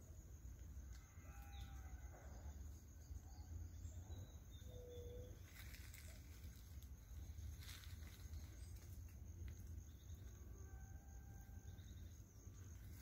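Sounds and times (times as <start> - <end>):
faint bird calls: 4.0 - 6.4
rustle: 4.5 - 10.6, 12.0 - 13.0
high insect-like tone: 5.0 - 13.0.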